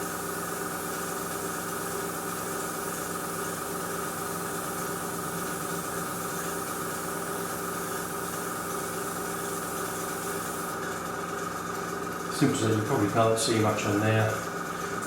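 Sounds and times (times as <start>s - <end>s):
airbrush spraying hiss: 0.0s - 10.8s
air compressor motor hum: 0.0s - 15.0s.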